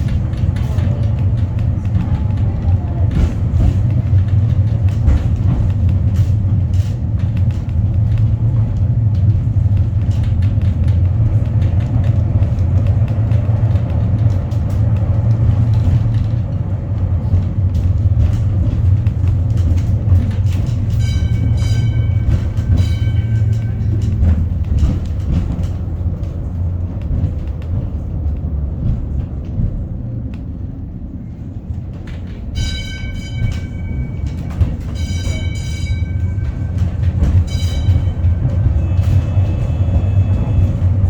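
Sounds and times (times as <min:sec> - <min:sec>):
cable car rumbling on track: 0:00.0 - 0:41.0
wheels clicking on rails: 0:00.0 - 0:41.0.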